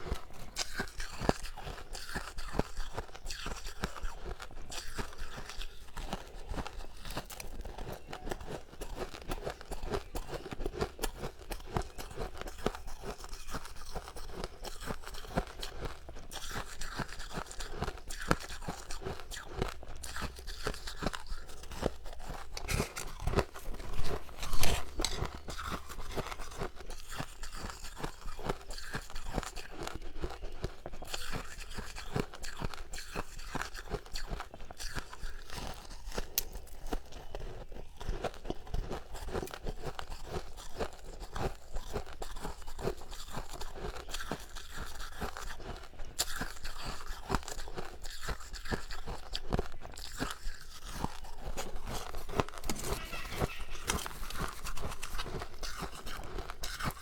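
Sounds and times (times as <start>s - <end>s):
chewing crunchy ice: 0.0s - 57.0s.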